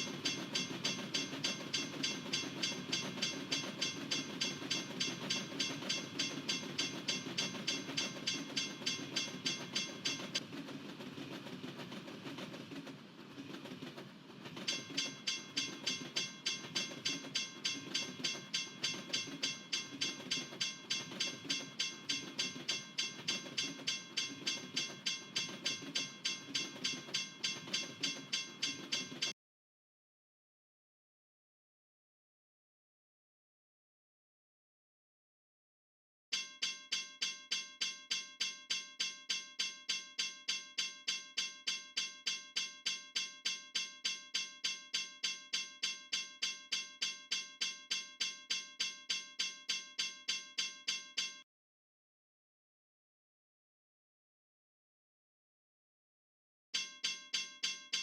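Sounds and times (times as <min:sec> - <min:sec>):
railroad crossing bell ringing: 0:00.0 - 0:10.4, 0:14.6 - 0:29.3, 0:36.3 - 0:51.4, 0:56.8 - 0:58.0
freight train rumbling: 0:00.0 - 0:29.3.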